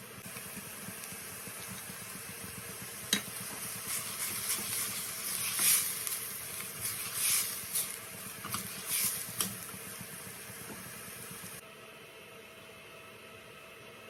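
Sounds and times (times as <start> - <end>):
food sizzling in a frying pan: 0.2 - 11.6
stirring scrapes and clicks: 3.1 - 9.7.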